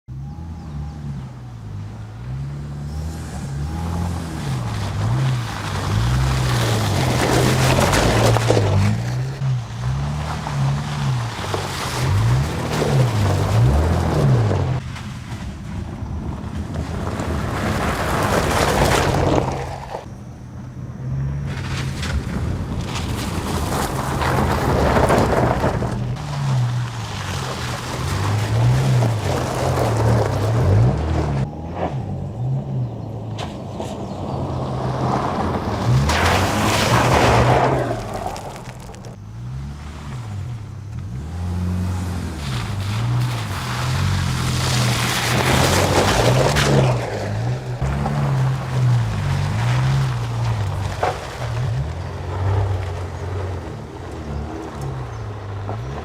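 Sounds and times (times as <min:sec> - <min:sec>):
road or gravel noise: 0:00.0 - 0:56.0
truck engine revving: 0:00.0 - 0:56.0
wind noise: 0:21.4 - 0:39.2.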